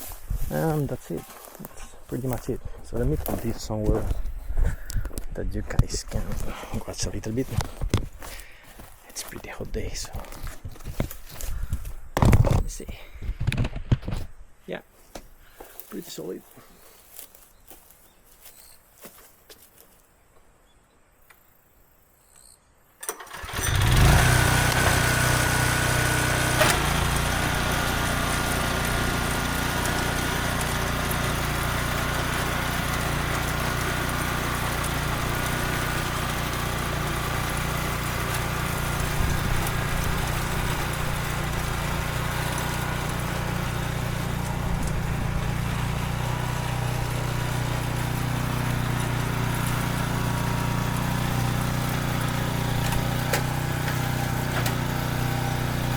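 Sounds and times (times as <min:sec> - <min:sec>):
small petrol engine starting and running: 0:04.8 - 0:12.6, 0:23.0 - 0:55.9.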